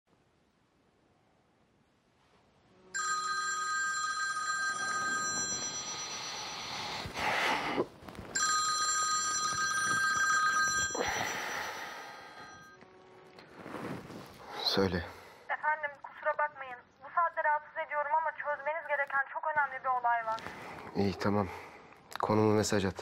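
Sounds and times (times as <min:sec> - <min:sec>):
mobile phone ringtone: 0:03.0 - 0:07.2, 0:08.4 - 0:12.9
bedding rustling: 0:06.9 - 0:11.0, 0:13.4 - 0:14.4.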